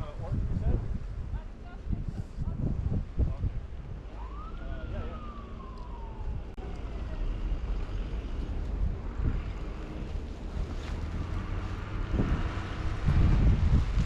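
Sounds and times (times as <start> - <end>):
traffic rumble: 0.0 - 14.0
wind rumble: 0.0 - 14.0
distant siren wailing: 4.0 - 8.2.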